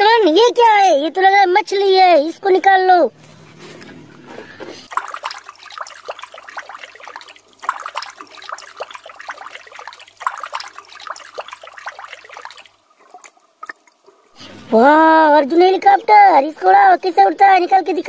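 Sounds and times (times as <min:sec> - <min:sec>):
water bubbling and trickling: 0:04.8 - 0:14.4.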